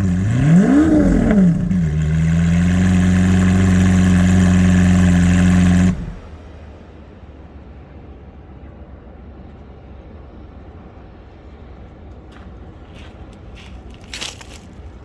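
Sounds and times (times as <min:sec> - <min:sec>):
car engine idling: 0:00.0 - 0:08.7.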